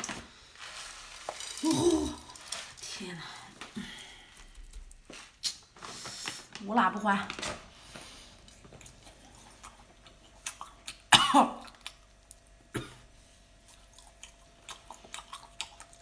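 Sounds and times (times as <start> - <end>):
person coughing: 1.6 - 2.3, 11.1 - 11.6
faint chewing clicks: 8.4 - 12.8, 13.6 - 16.0.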